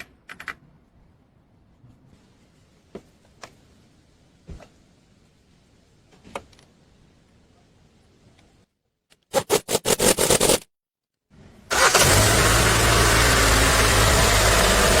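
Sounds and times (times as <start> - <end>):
car engine idling: 11.7 - 15.0
car engine starter cranking: 11.7 - 15.0.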